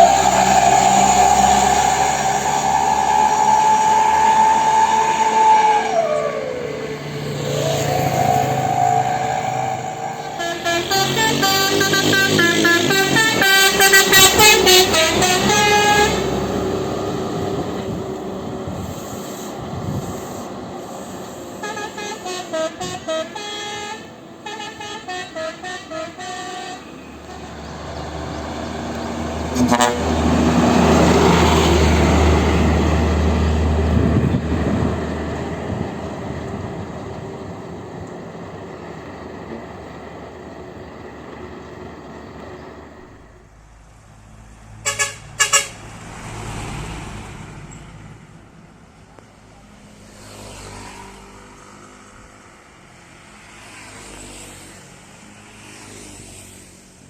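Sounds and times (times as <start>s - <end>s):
multi-tone musical horns: 0.0s - 6.6s, 7.4s - 17.1s, 21.6s - 27.6s, 29.4s - 32.6s, 44.8s - 45.9s
deep engine rumble: 0.0s - 20.7s, 27.1s - 43.6s
heavy vehicles passing: 0.0s - 57.0s.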